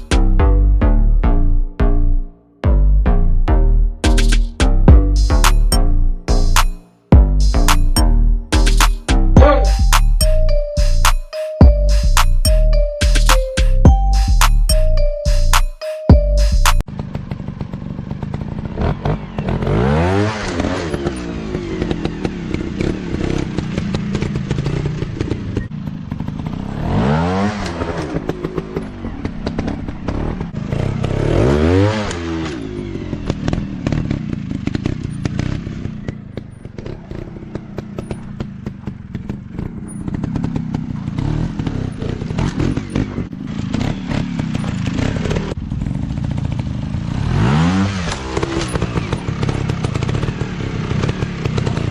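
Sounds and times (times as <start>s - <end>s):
dirt bike engines revving: 17.0s - 51.9s.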